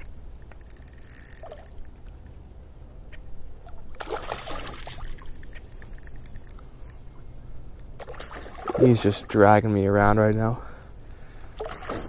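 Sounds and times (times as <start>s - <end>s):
faint ticks: 0.0s - 4.1s, 4.8s - 12.0s
low steady rumble: 0.0s - 12.0s
fish splashing in water: 4.0s - 6.1s, 8.0s - 9.3s, 11.6s - 12.0s.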